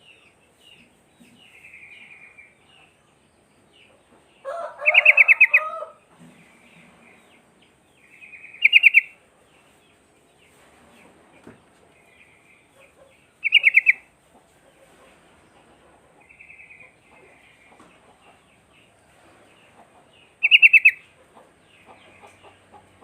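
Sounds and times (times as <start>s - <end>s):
bird warbling: 8.3s - 9.2s, 13.4s - 14.0s, 20.4s - 21.0s.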